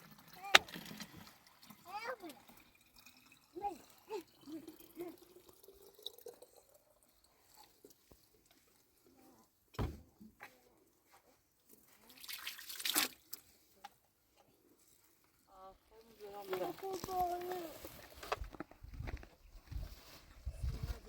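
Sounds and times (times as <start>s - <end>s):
milk squirting into a pail: 0.0s - 8.6s, 12.0s - 13.5s.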